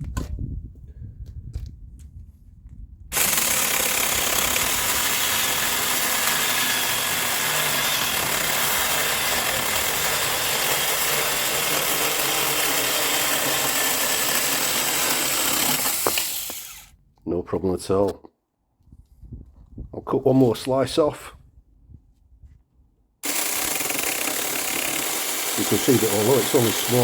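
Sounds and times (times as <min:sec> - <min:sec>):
electric chainsaw cutting wood: 0:03.1 - 0:16.9, 0:23.2 - 0:27.0.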